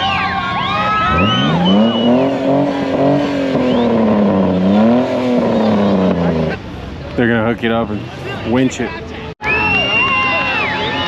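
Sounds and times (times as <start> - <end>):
high whistling glides: 0.0 - 5.0
vehicle engine revving hard: 1.0 - 6.6.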